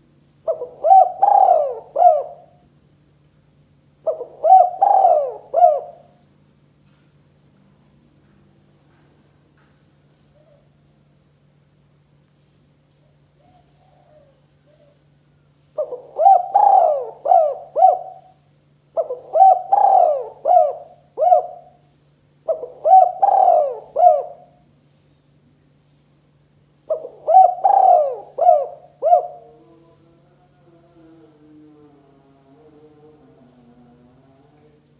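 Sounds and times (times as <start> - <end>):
dove cooing: 0.4 - 2.6, 4.0 - 6.2, 13.4 - 15.0, 15.8 - 21.8, 22.4 - 24.6, 26.9 - 29.8.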